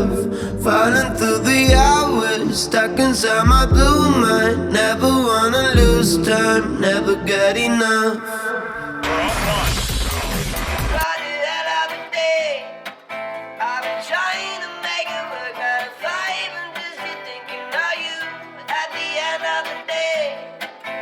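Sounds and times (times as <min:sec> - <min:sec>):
plucked acoustic guitar: 0:00.0 - 0:07.9.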